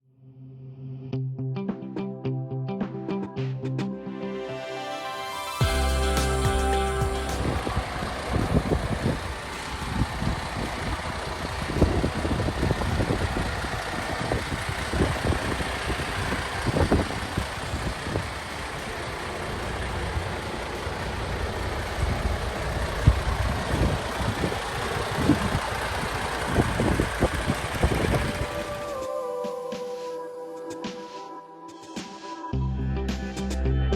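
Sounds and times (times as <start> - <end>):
diesel engine idling: 5.6 - 29.1.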